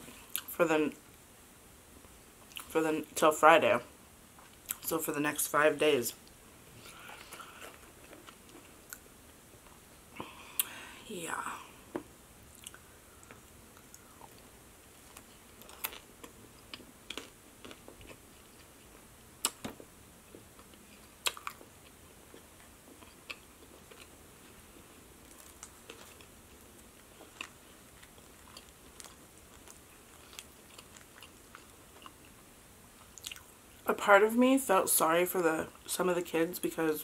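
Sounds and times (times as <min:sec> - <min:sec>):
chewing with mouth smacks: 0:27.0 - 0:32.4, 0:33.0 - 0:33.5.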